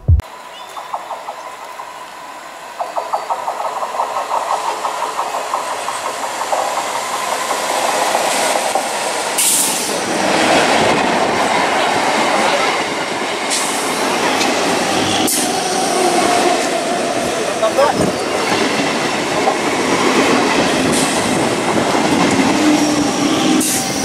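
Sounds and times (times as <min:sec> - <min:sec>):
rush of moving train coaches: 0:00.2 - 0:24.0
wheels clattering over rail joints: 0:02.8 - 0:11.1.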